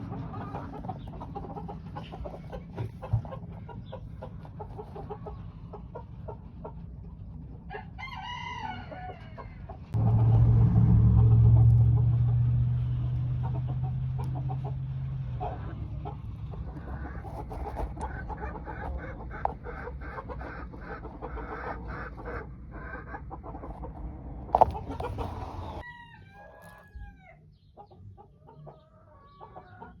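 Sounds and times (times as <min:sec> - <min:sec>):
chickens clucking: 0:00.0 - 0:10.4, 0:11.2 - 0:30.0
small birds chirping: 0:00.4 - 0:05.8
rooster crowing: 0:07.7 - 0:09.6, 0:25.6 - 0:27.4
loud low hum: 0:10.0 - 0:17.1.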